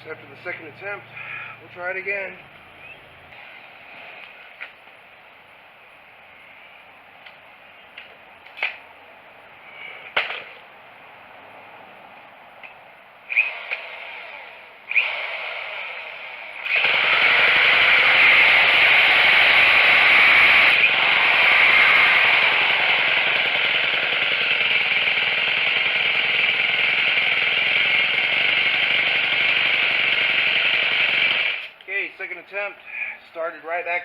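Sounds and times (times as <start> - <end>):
drill whirring: 13.3 - 31.8
string trimmer engine running: 13.3 - 31.8.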